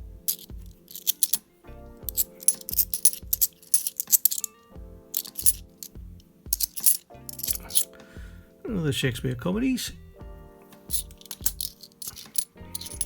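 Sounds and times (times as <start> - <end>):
background music with steady beat: 0.0 - 13.0
coins clinking: 0.2 - 4.6, 5.2 - 7.9, 10.8 - 13.0.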